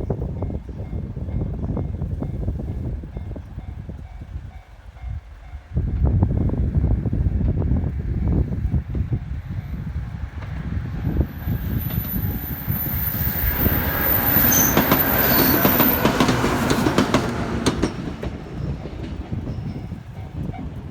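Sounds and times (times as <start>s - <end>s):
train low rumble: 0.0s - 20.9s
wheels clacking over rail joints: 10.4s - 20.3s
wheel squeals: 11.2s - 16.5s.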